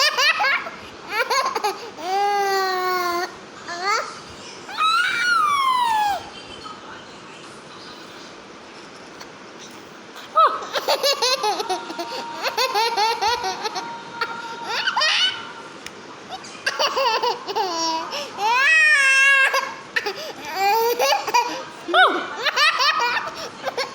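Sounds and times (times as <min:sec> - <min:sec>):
baby laughing: 0:00.0 - 0:04.0, 0:10.5 - 0:15.4, 0:16.3 - 0:23.9.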